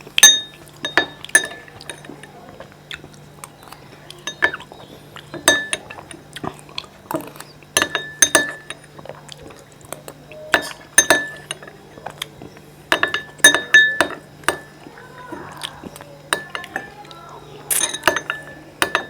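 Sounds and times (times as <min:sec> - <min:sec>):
spoon clinking against bowl: 0:00.2 - 0:19.0.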